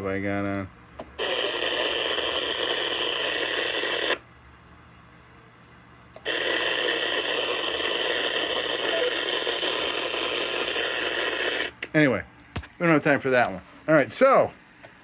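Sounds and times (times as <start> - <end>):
radio speaker static hiss: 1.1 - 4.2, 6.2 - 11.8.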